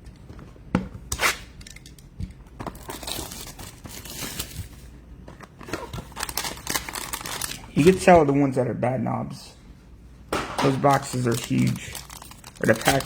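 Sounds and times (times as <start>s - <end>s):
card packaging tearing and crinkling: 2.7s - 4.9s, 5.6s - 8.0s, 10.6s - 13.0s.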